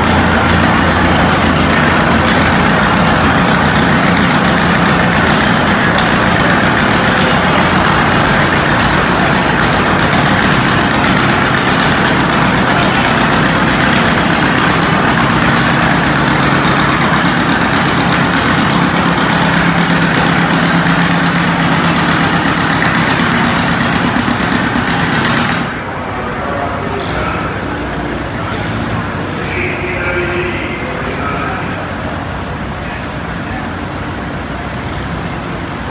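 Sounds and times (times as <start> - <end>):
tractor engine running hard: 0.0 - 35.9.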